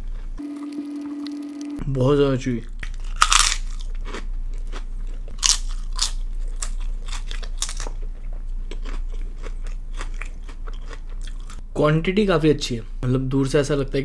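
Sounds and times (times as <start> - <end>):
person crunching food: 2.8 - 11.6.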